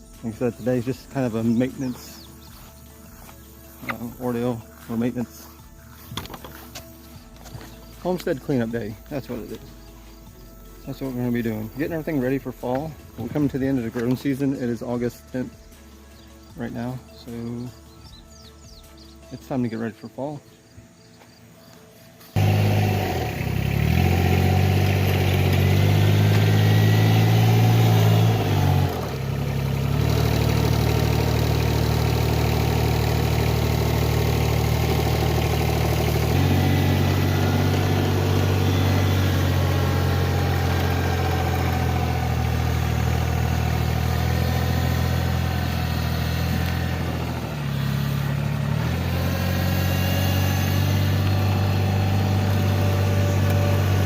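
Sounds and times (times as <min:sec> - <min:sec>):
tractor engine running: 0:00.0 - 0:20.0, 0:22.2 - 0:54.0.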